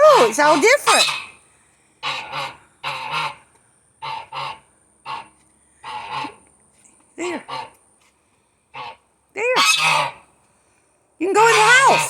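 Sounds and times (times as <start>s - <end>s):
goose honking: 0.0s - 1.4s, 2.0s - 6.5s, 7.2s - 7.8s, 8.7s - 10.3s, 11.4s - 12.0s.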